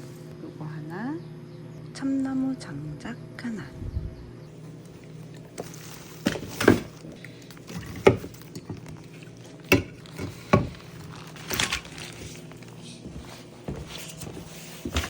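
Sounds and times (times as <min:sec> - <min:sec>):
knocks and rustles of handled items: 0:05.4 - 0:15.0.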